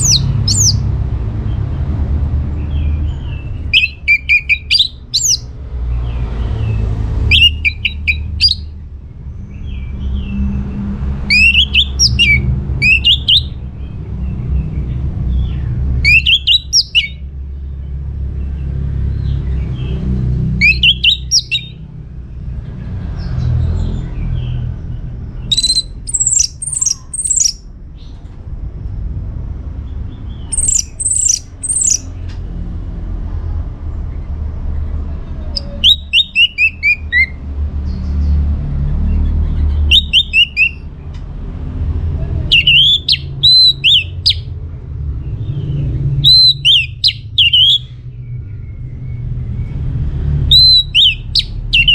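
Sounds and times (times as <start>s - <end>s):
thrush singing: 0.0s - 0.9s, 3.4s - 5.5s, 6.4s - 8.7s, 11.1s - 13.6s, 15.9s - 17.2s, 19.9s - 21.9s, 25.5s - 27.6s, 30.5s - 32.1s, 35.5s - 37.4s, 39.9s - 40.9s, 42.4s - 44.5s, 46.2s - 47.9s, 50.5s - 51.9s.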